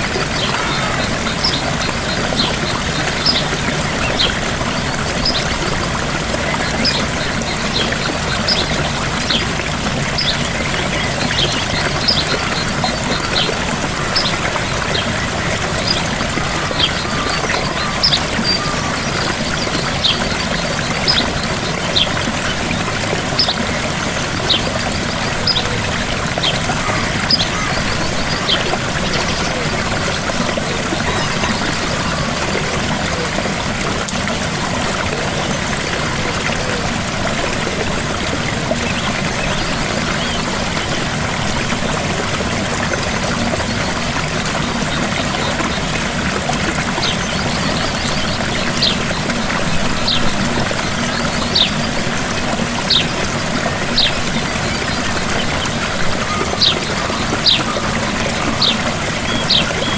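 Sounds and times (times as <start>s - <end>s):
waterfall rushing and splashing: 0.0s - 59.9s.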